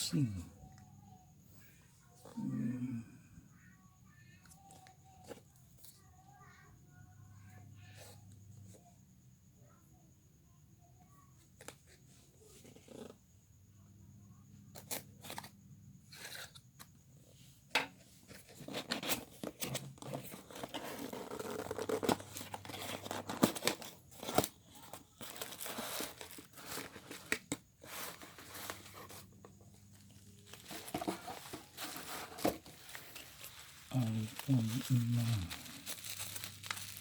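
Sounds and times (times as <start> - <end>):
packaging tearing and crinkling: 18.6 - 29.2, 30.0 - 37.0.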